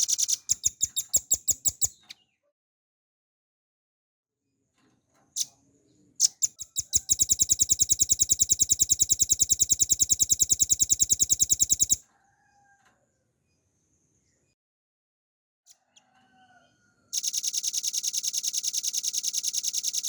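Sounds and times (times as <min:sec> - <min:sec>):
bird singing fast trill: 0:00.0 - 0:02.2, 0:06.2 - 0:12.0.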